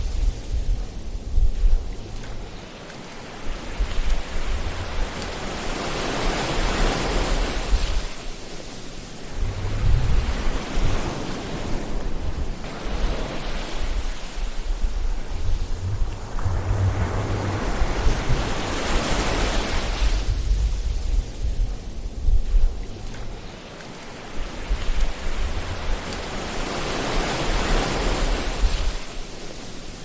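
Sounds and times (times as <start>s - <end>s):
ocean waves washing: 0.0s - 30.0s.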